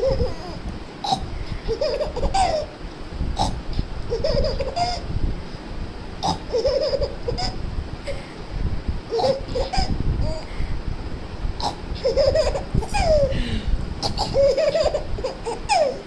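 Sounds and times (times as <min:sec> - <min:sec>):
baby giggling: 0:00.0 - 0:02.7, 0:03.4 - 0:05.0, 0:06.2 - 0:07.6, 0:09.1 - 0:10.5, 0:11.6 - 0:13.4, 0:14.0 - 0:16.0
low rumbling noise: 0:00.0 - 0:16.0.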